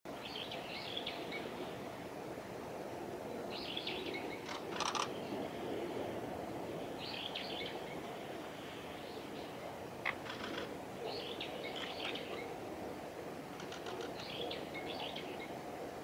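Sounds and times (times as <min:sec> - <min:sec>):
low background rush: 0:00.1 - 0:16.0
birds chirping: 0:06.8 - 0:12.7, 0:13.5 - 0:15.6.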